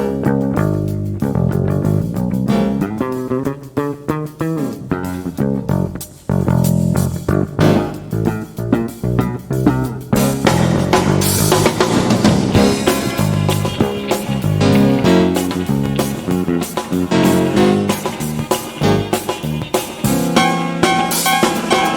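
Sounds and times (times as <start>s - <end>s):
bass guitar: 0.0s - 21.9s
picked guitar line: 0.0s - 21.9s
cymbal crash: 10.4s - 21.9s.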